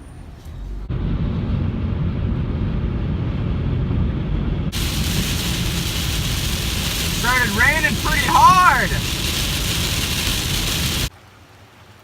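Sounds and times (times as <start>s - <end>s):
car driving rumble: 0.6s - 11.1s
heavy rain hiss: 4.7s - 11.1s.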